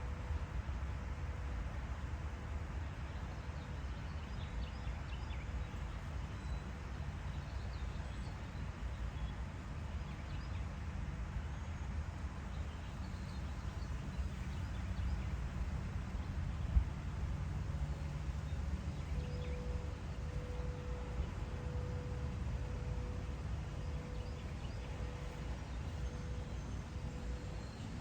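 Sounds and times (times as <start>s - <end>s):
distant songbirds chirping: 12.5s - 28.0s.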